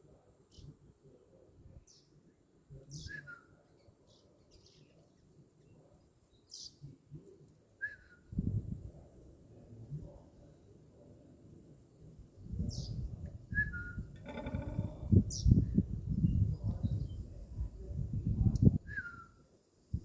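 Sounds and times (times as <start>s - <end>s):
bird chirping: 2.9s - 5.0s, 5.6s - 6.9s, 12.6s - 17.5s.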